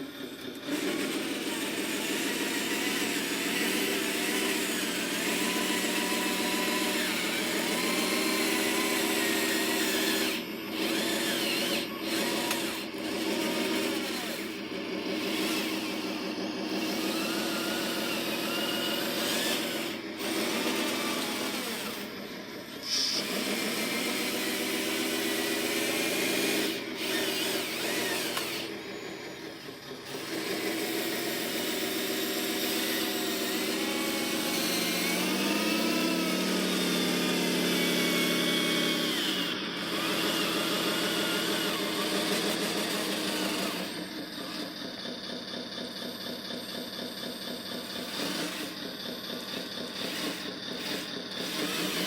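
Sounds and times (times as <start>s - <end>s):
small electric motors whining: 0.0s - 52.0s.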